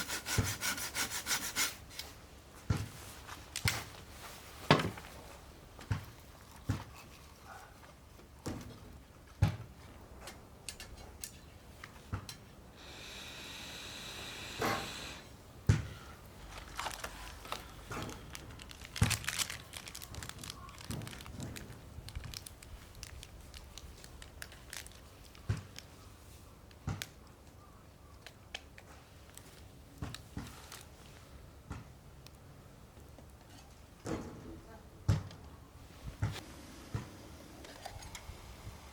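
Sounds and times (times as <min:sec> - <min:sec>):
steady hiss: 0:12.7 - 0:15.4, 0:36.4 - 0:38.9.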